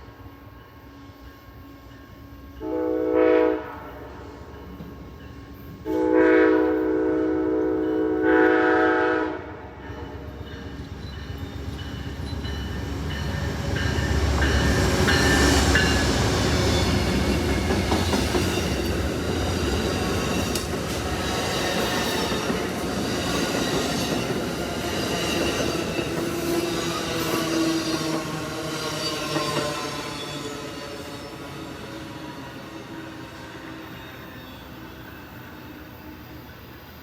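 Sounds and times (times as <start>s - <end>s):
train horn blasts: 2.6s - 4.4s, 5.8s - 10.3s
train rumbling and clattering: 3.5s - 36.7s.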